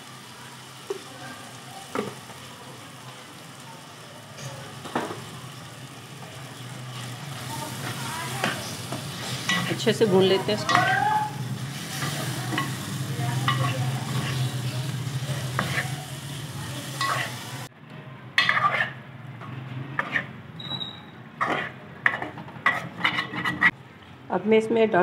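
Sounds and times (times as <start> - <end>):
food sizzling in a pot: 0.0 - 17.7
metal spoon scraping a pot: 15.4 - 16.0, 18.4 - 19.0, 20.0 - 23.8.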